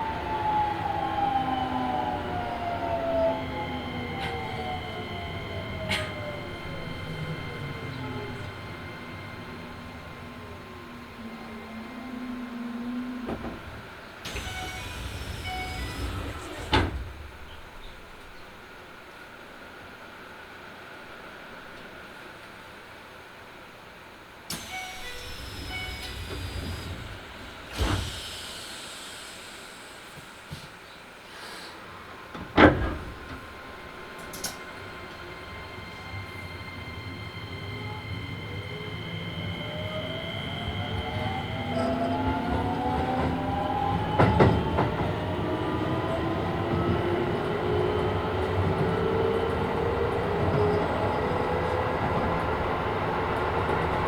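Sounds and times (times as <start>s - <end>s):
traction motors whining: 0.0s - 18.4s, 24.5s - 54.0s
train doors thudding shut: 2.3s - 12.3s, 13.0s - 18.2s, 24.5s - 30.8s, 31.4s - 36.6s, 40.4s - 51.4s
air hiss with falling whistle: 14.3s - 16.7s, 24.5s - 31.8s.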